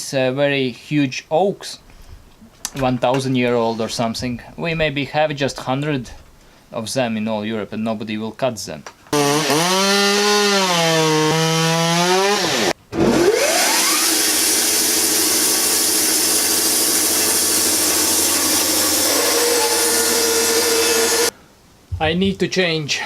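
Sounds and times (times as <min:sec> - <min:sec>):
chainsaw cutting log: 0:09.1 - 0:21.3
saw revving through wood: 0:09.1 - 0:21.3.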